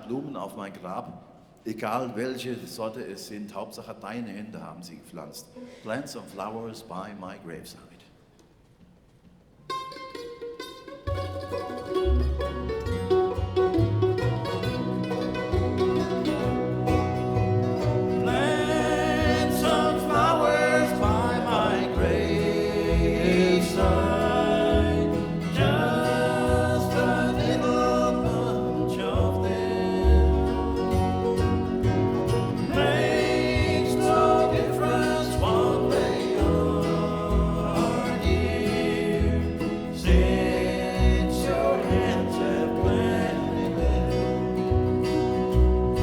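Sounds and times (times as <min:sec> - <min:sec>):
banjo: 0:09.6 - 0:46.0
plucked guitar: 0:09.6 - 0:46.0
walking bass: 0:11.1 - 0:46.0
person singing: 0:18.2 - 0:44.4.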